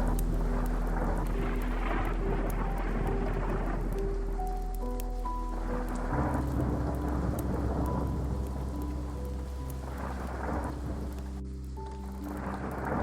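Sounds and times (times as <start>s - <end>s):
rolling thunder: 0.0s - 13.0s
slow ambient chords: 0.0s - 13.0s
steady rain: 0.0s - 13.0s.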